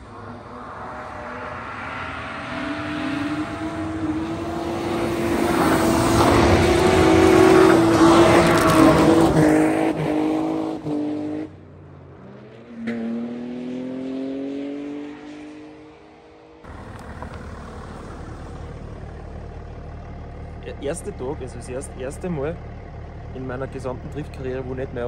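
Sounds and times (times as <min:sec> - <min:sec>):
tyres rushing through snow: 0:00.0 - 0:10.8, 0:16.7 - 0:22.6
car engine at high revs: 0:00.0 - 0:25.0
distant car engine revving: 0:00.0 - 0:25.0.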